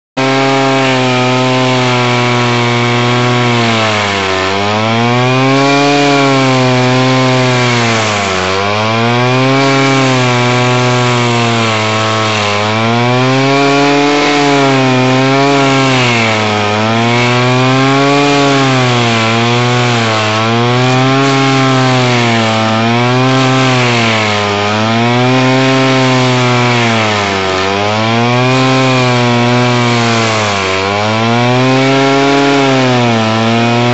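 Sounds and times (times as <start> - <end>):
stump grinder grinding wood: 0.2 - 33.9.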